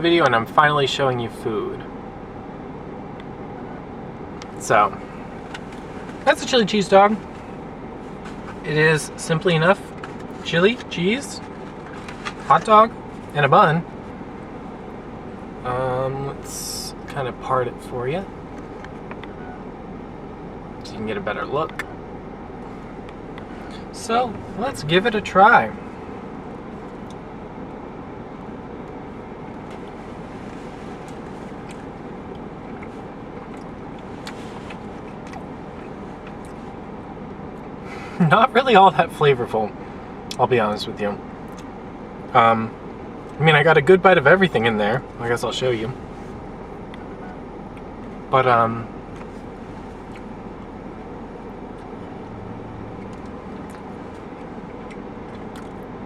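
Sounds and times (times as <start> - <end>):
low background rumble: 0.0 - 56.0
chewing clicks and smacks: 31.1 - 36.6, 41.4 - 41.7, 50.0 - 50.3, 53.0 - 56.0.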